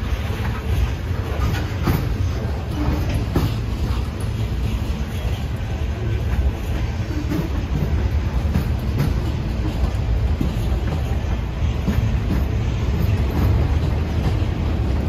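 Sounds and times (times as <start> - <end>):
freight train rumbling: 0.0 - 15.0
train wheel clicks: 0.0 - 15.0.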